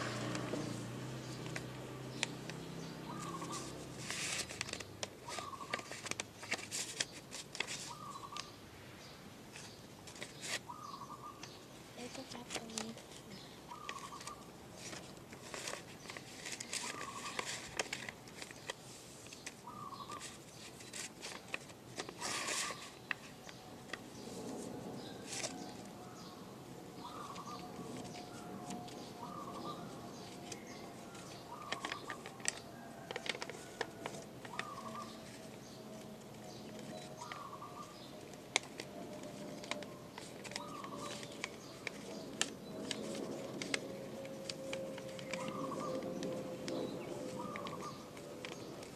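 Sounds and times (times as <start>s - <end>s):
paper being folded and creased: 0.0s - 8.5s, 9.5s - 10.7s, 12.0s - 25.9s, 27.0s - 48.9s
bird calling: 2.1s - 6.0s, 7.8s - 8.6s, 10.4s - 14.5s, 16.0s - 17.7s, 19.4s - 20.7s, 25.0s - 38.4s, 39.2s - 48.9s.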